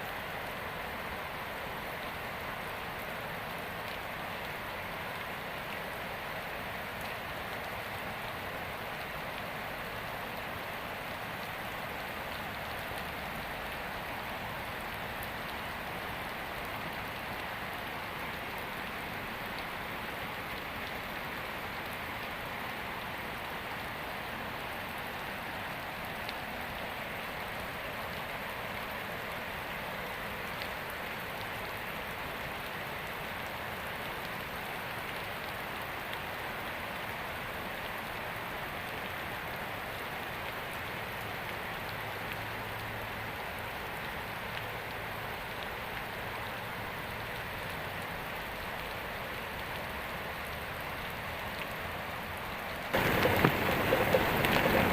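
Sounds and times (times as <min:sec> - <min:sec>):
heavy rain pouring: 0:00.0 - 0:54.9.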